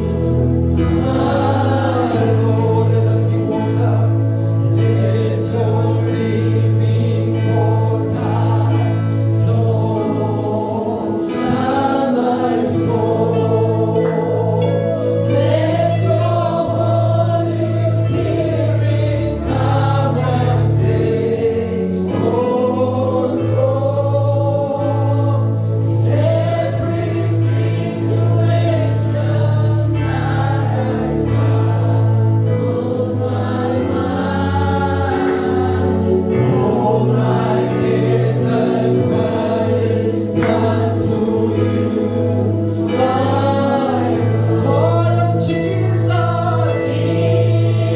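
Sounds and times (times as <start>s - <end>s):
choir singing worship song: 0.0s - 47.9s
sustained bass notes: 0.0s - 47.9s.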